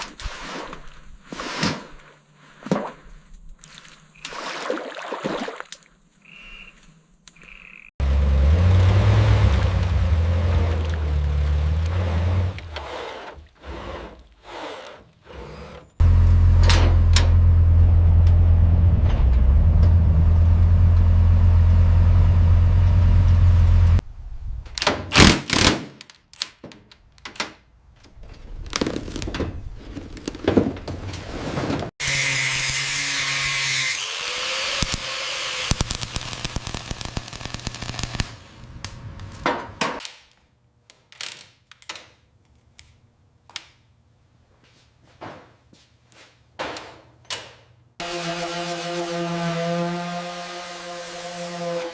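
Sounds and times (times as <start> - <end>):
clatter: 8.0 - 14.2
power tool running: 8.0 - 16.3.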